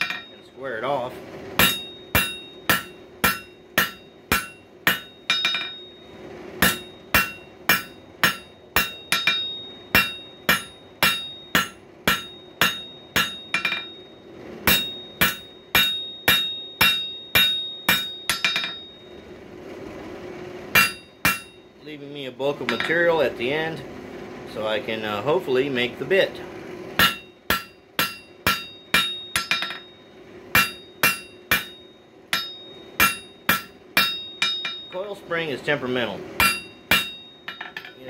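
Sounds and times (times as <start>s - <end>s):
hammer striking steel on anvil: 0.0s - 0.9s, 1.5s - 19.2s, 20.7s - 21.7s, 22.6s - 23.2s, 27.0s - 35.2s, 36.4s - 38.0s
steady low hum: 0.0s - 38.0s.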